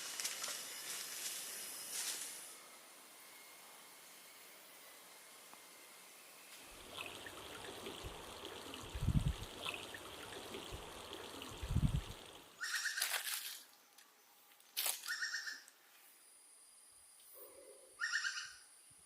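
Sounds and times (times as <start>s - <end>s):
water trickling: 6.6s - 13.6s
dull low thumps: 8.0s - 12.3s.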